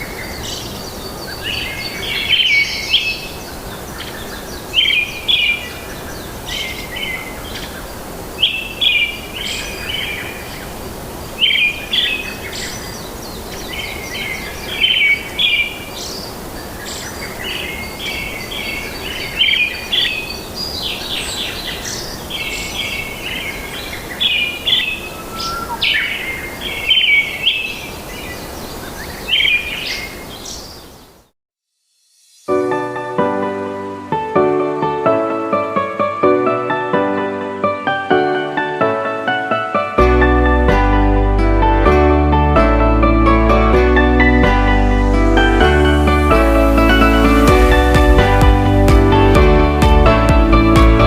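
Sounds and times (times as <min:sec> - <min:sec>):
bird singing chirping phrases: 0:00.0 - 0:31.2
steady background hiss: 0:00.0 - 0:31.3.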